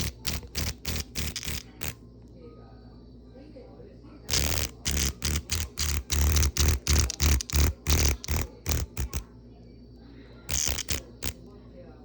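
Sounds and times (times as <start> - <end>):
cicada buzzing distress squawks: 0.0 - 2.0, 4.3 - 9.2, 10.5 - 11.4.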